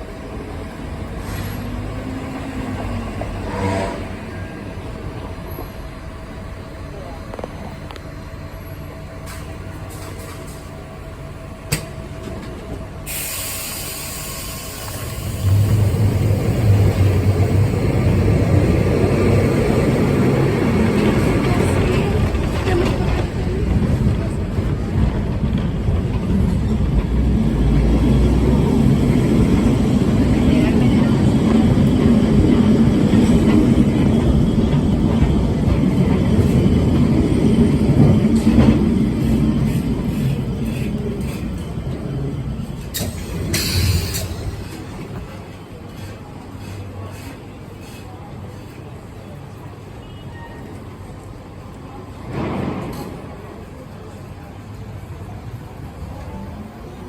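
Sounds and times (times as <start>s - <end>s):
tram running on rails: 0.0s - 57.0s
hiss: 13.0s - 15.8s, 43.0s - 44.5s.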